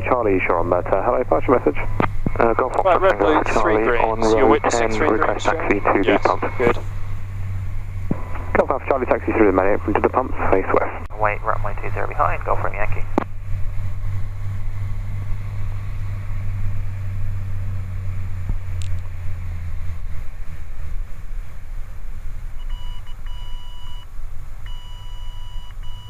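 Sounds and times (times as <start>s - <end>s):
light aircraft engine humming: 0.0s - 26.0s
electronic beep tone: 22.6s - 24.1s, 24.7s - 26.0s.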